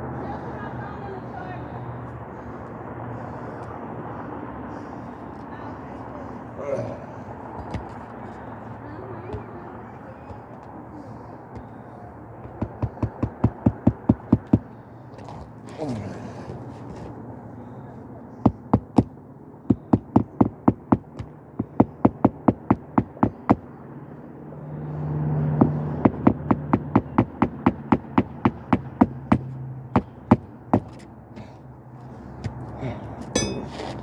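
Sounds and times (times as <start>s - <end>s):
hammer striking roofing nails: 12.4s - 14.8s, 18.4s - 23.7s, 25.6s - 31.5s.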